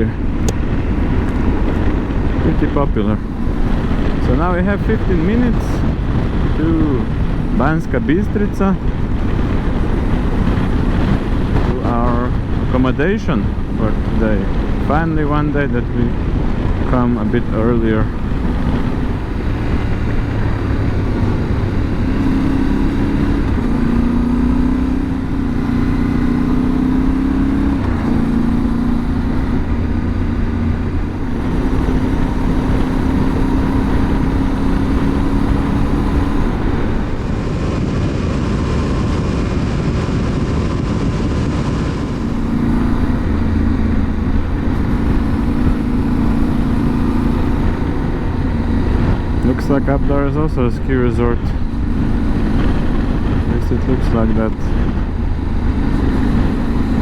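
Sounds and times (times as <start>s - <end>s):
motorcycle engine accelerating: 0.0s - 57.0s
wind and road noise: 0.0s - 57.0s.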